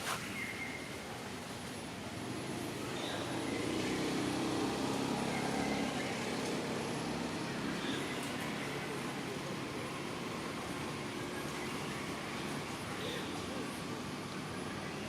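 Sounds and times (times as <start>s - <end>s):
vehicle engine passing by: 2.2s - 9.6s.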